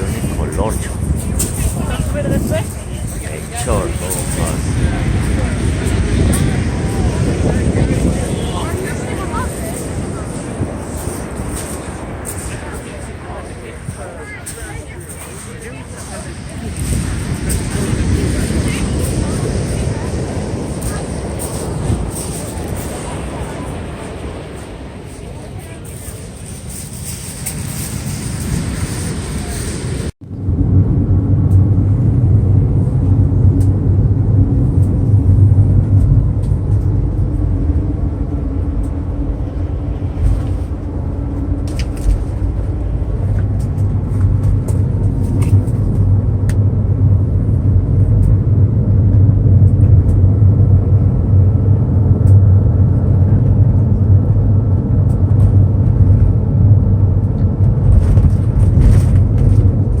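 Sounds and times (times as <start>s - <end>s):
car engine: 0.0s - 60.0s
road noise: 0.0s - 60.0s.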